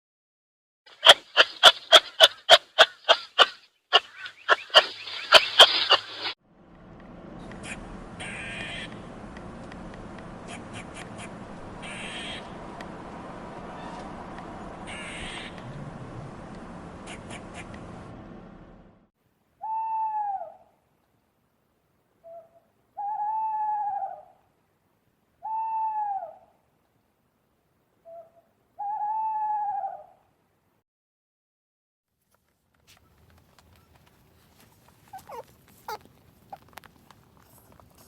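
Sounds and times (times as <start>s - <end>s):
owl hooting: 1.0s - 6.4s, 7.6s - 9.0s, 10.4s - 12.6s, 14.9s - 15.6s, 19.6s - 20.7s, 22.2s - 24.4s, 25.4s - 26.5s, 28.0s - 30.2s, 35.0s - 36.6s.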